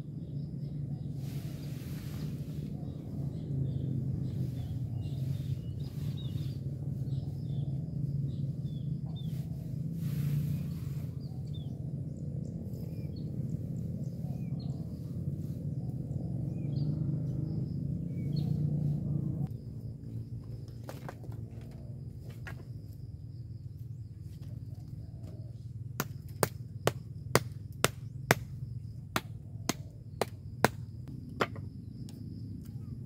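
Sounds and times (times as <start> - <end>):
steady low rumble: 0.0 - 20.0
small birds chirping: 0.0 - 33.0.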